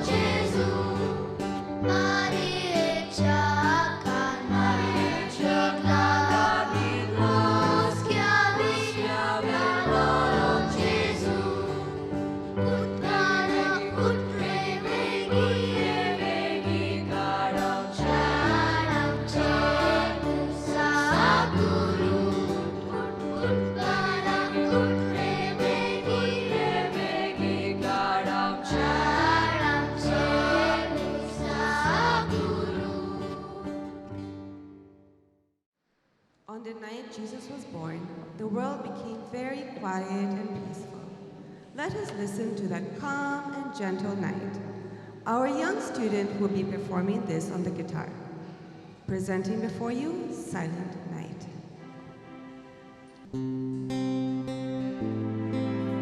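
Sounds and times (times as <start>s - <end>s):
choir singing a carol: 0.0s - 34.4s
instrumental accompaniment: 0.0s - 35.1s, 51.6s - 56.0s.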